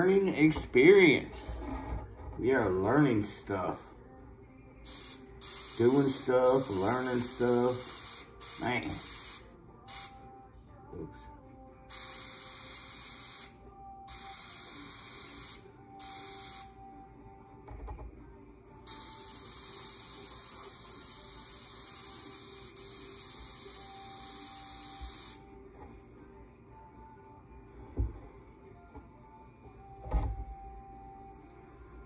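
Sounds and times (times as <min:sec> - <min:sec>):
airbrush spraying paint: 0:04.8 - 0:10.2, 0:11.9 - 0:16.8, 0:18.9 - 0:25.5.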